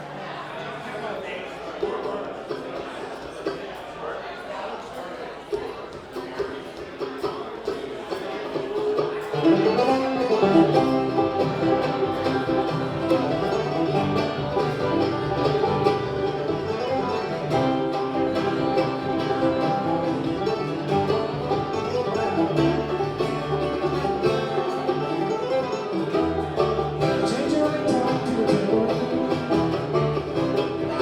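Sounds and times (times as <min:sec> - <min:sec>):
bluegrass band playing: 0:00.0 - 0:04.5, 0:05.4 - 0:31.0
banjo picking: 0:00.0 - 0:31.0
guitar picking: 0:08.8 - 0:31.0.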